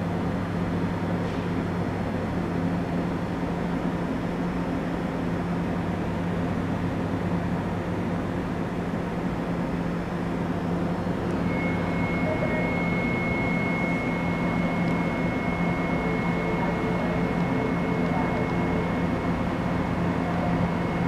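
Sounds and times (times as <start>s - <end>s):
train equipment low hum: 0.0s - 21.0s
thin high whine: 10.3s - 21.0s.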